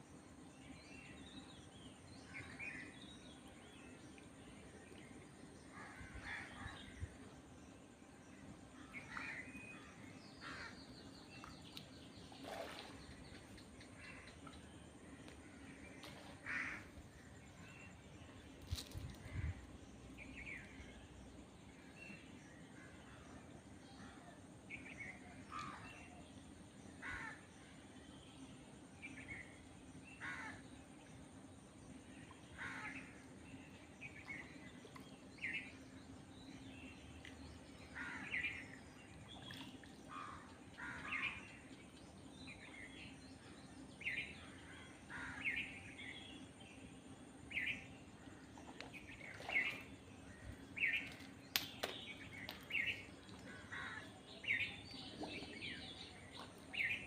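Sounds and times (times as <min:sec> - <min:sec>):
steady low hum: 0:00.0 - 0:57.0
birds calling: 0:48.6 - 0:57.0.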